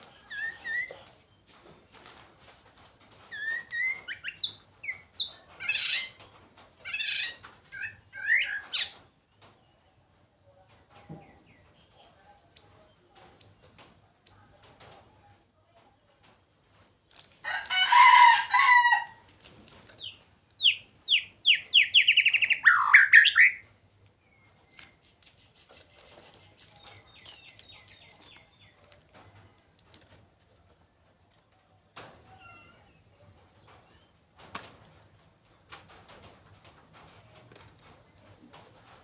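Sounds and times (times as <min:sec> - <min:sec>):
songbird singing: 0:00.0 - 0:01.9, 0:03.2 - 0:09.8, 0:10.4 - 0:14.8, 0:19.9 - 0:30.0.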